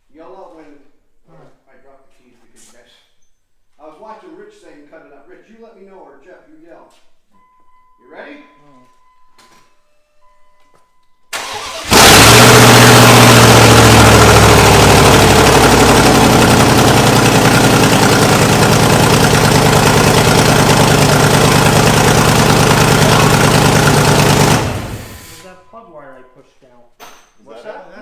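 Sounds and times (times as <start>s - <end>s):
loud engine running: 11.4s - 25.5s
starter motor cranking: 11.4s - 25.5s.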